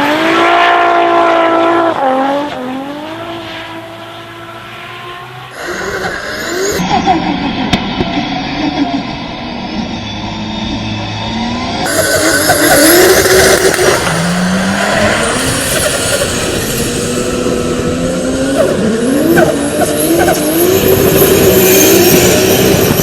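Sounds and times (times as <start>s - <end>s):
car engine revving: 0.0s - 23.0s
tyres screeching: 5.5s - 6.9s, 11.8s - 17.1s.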